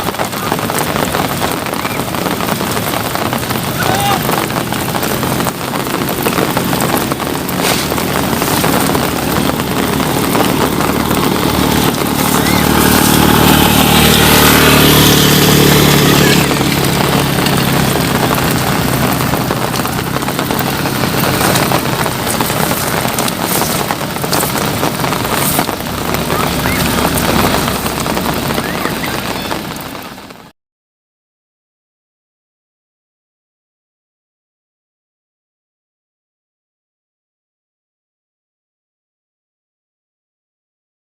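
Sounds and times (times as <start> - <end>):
rain hiss: 0.0 - 30.5
vehicle driving past: 4.2 - 30.0.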